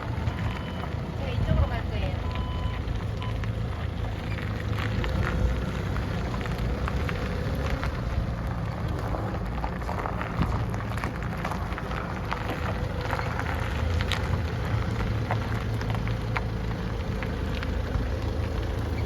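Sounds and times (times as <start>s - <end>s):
reversing beep: 0.0s - 1.2s, 2.1s - 3.5s
forklift engine running: 0.0s - 19.0s.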